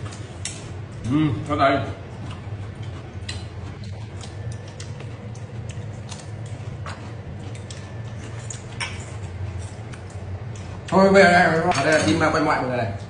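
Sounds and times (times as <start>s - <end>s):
steady low hum: 0.0s - 13.0s
person chewing: 2.0s - 11.0s.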